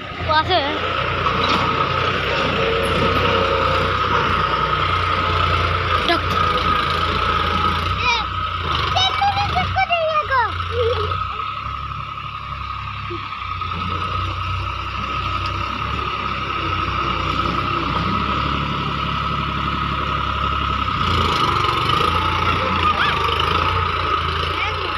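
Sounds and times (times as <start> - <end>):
tractor engine running: 0.0 - 24.9.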